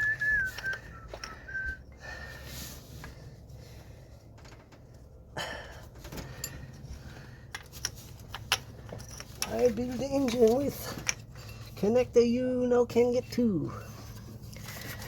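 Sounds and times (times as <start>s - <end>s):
clicks taps and scraping by hand: 0.0s - 1.8s
low steady hum: 0.0s - 15.0s.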